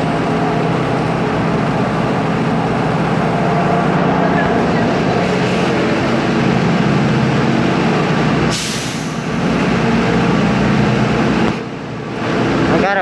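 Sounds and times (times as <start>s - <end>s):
bus engine running: 0.0s - 13.0s
air brakes hissing: 8.4s - 9.5s.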